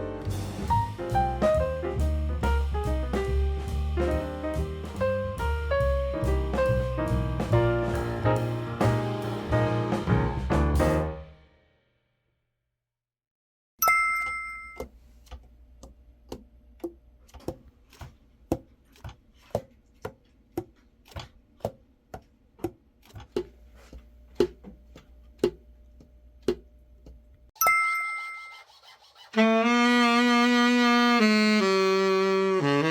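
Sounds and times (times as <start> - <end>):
bright ringing ding: 13.8 - 14.9, 27.6 - 28.5.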